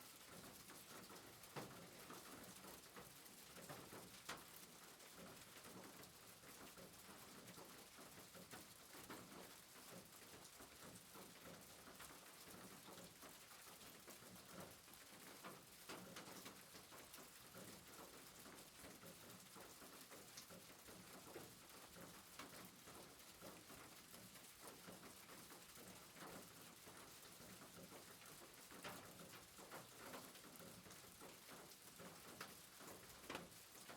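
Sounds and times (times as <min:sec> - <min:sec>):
soft rain pattering: 0:00.0 - 0:33.9.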